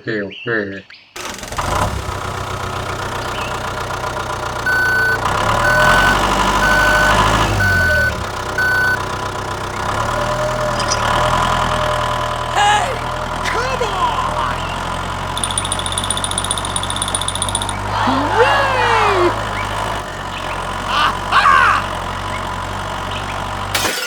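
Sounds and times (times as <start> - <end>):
vehicle engine idling: 1.2 - 23.7
reversing alarm beeping: 4.7 - 9.1, 15.4 - 19.2.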